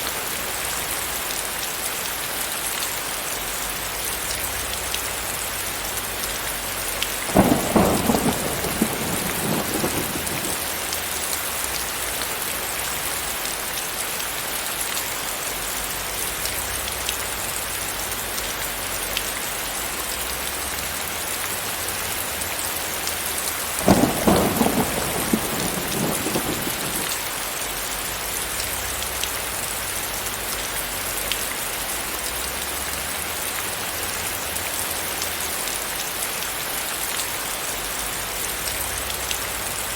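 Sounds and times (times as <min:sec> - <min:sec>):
heavy rain: 0:00.0 - 0:39.9
thunderclaps rumbling: 0:07.2 - 0:11.8, 0:23.7 - 0:27.3.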